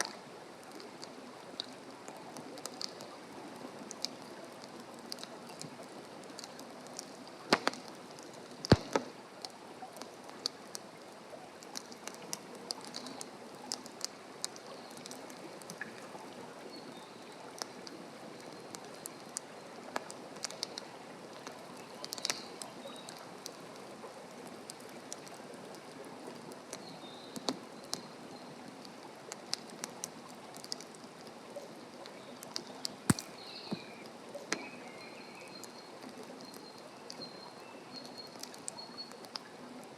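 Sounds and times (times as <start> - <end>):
campfire crackling: 4.8 - 10.8, 33.1 - 33.7.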